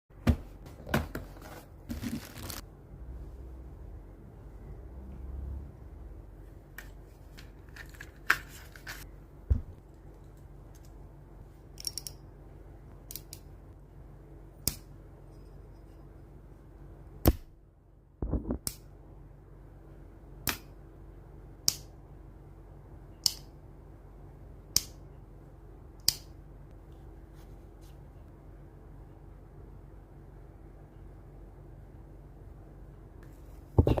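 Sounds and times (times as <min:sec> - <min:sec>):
low hum: 0:01.9 - 0:07.7.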